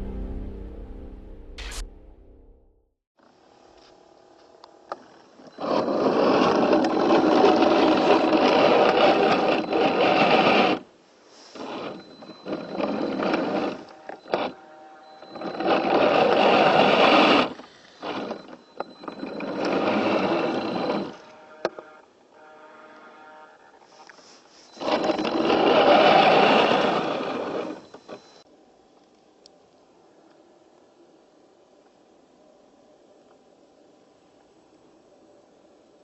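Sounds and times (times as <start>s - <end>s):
toy car electric motor whining: 5.3s - 10.8s, 11.5s - 21.8s, 24.7s - 28.4s.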